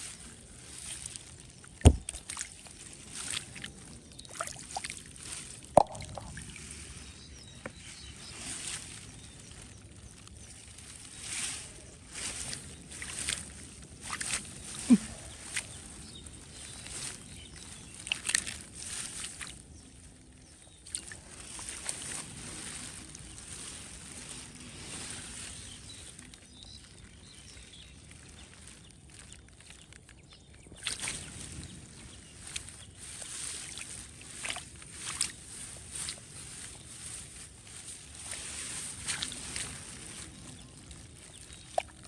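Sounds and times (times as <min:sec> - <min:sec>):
shallow water sloshing: 0:00.0 - 0:07.0, 0:30.8 - 0:42.0
sharp water splashes: 0:01.8 - 0:06.6, 0:32.5 - 0:36.6.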